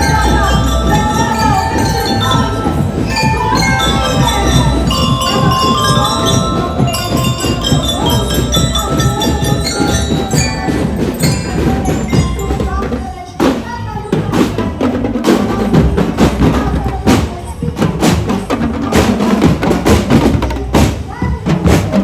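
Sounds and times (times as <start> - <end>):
bell-like melody: 0.0 - 14.7
heavy drum strikes: 0.0 - 22.0
snare and bass drumming: 0.0 - 22.0.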